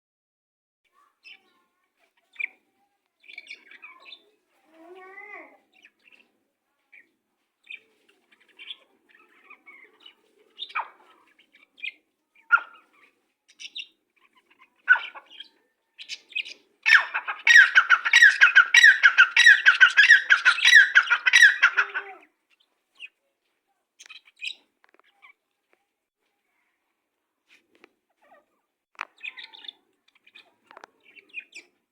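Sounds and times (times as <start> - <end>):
birds chirping: 6.9 - 23.2, 29.0 - 31.9.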